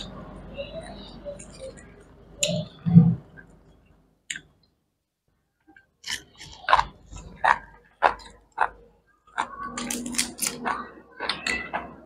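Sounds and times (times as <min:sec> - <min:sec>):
close chewing and mouth clicks: 0:05.7 - 0:12.0.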